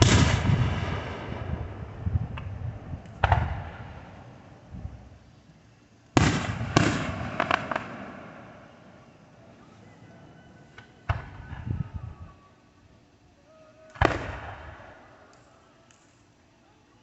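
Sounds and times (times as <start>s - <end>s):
fireworks crackling pops: 0.0s - 4.2s, 4.8s - 8.4s, 13.9s - 16.2s
fireworks bangs: 0.0s - 5.2s, 6.2s - 9.5s, 10.7s - 11.8s, 13.9s - 15.3s.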